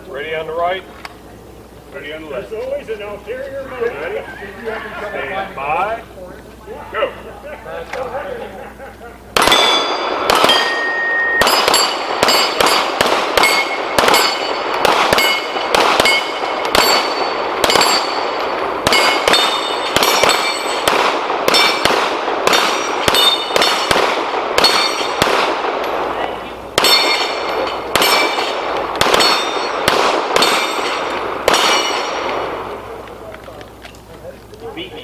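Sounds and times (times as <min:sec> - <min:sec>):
handgun shots: 0:09.4 - 0:26.0, 0:26.8 - 0:32.5
steel plates pinging: 0:09.5 - 0:20.8, 0:24.6 - 0:25.2, 0:26.8 - 0:32.3.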